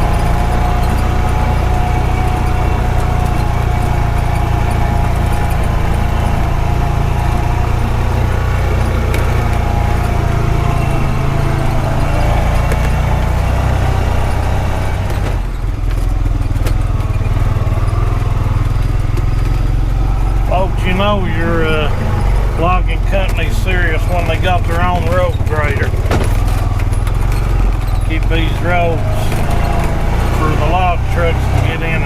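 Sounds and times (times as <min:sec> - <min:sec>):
utility vehicle engine running: 0:00.0 - 0:32.0.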